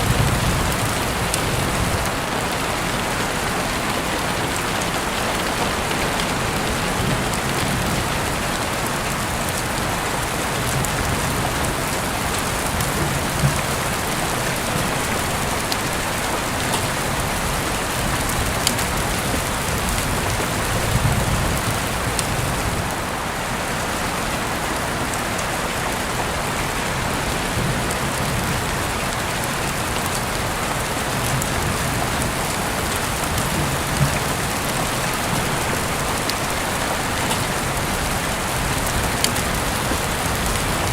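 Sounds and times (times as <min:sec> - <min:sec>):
heavy rain hissing: 0:00.0 - 0:40.9
raindrop ticks: 0:04.8 - 0:23.0, 0:31.1 - 0:40.9.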